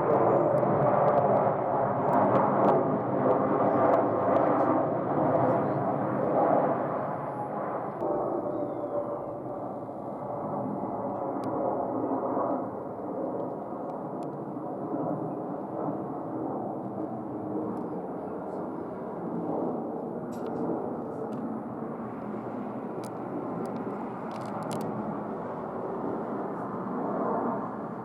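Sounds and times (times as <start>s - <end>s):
jet engine noise: 0.0s - 28.0s
faint clicks: 23.0s - 24.9s.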